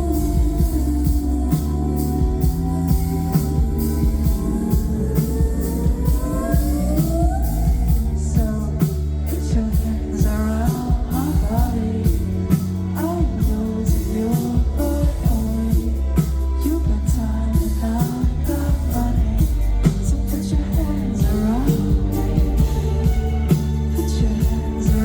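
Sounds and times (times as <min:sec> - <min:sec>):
live electronic pop music: 0:00.0 - 0:25.0
person singing: 0:00.0 - 0:25.0.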